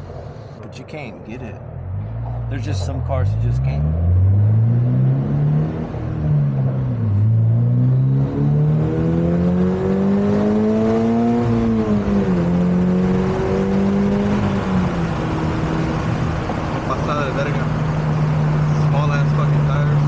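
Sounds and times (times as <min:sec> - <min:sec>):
car engine revving: 0:00.0 - 0:20.0
wind and road noise: 0:00.0 - 0:20.0.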